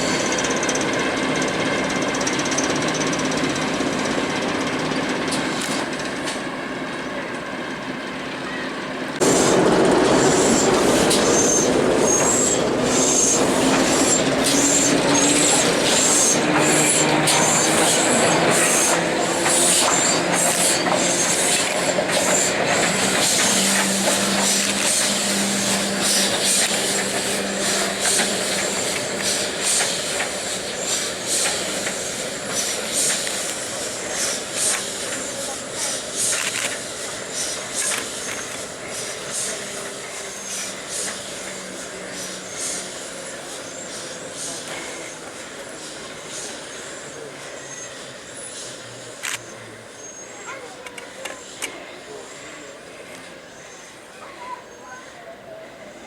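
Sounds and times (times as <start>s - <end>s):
train rail and wheel noise: 0.0s - 56.0s
high wheel squealing: 8.5s - 49.0s.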